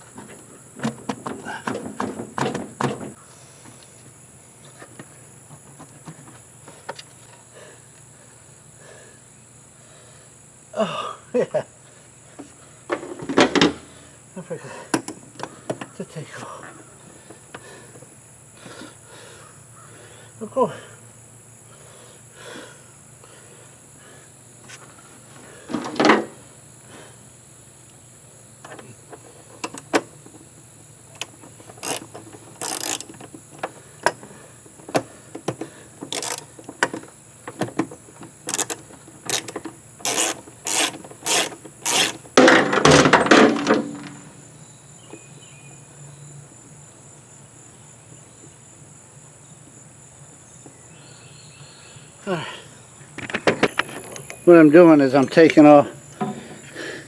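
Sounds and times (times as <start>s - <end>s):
high insect drone: 0.0s - 57.0s
scraping rattle of parts: 31.2s - 35.0s, 35.6s - 44.3s
tool clicks and taps: 38.5s - 42.2s.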